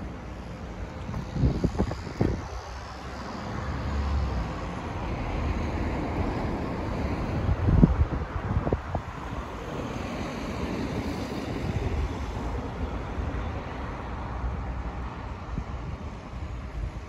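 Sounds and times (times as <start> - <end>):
wind buffeting microphone: 0.1 - 17.0.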